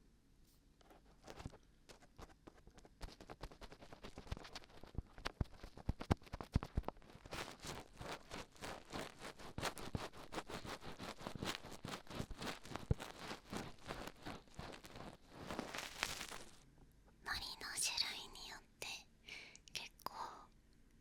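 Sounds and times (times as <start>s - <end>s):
glue peeling crackle: 7.2s - 16.6s.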